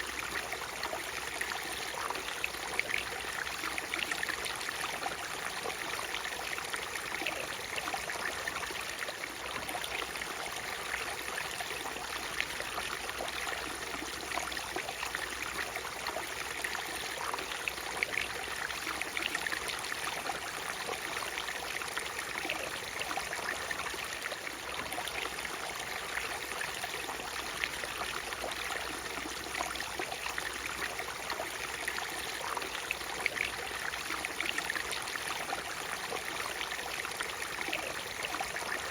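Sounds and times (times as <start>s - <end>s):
water splashes and trickles: 0.0s - 38.9s.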